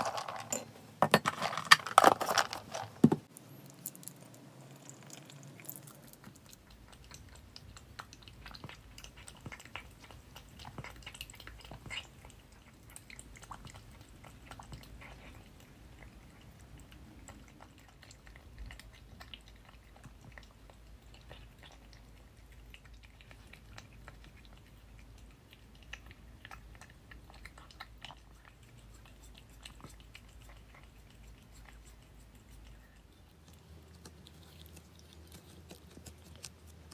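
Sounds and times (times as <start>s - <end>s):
low steady hum: 0.0s - 36.9s
small pet chewing: 1.9s - 36.9s.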